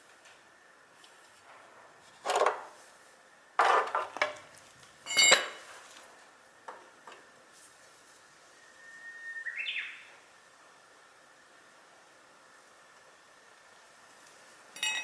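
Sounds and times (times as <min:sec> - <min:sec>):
metal parts and tools clattering: 0:05.1 - 0:05.7, 0:14.8 - 0:15.0.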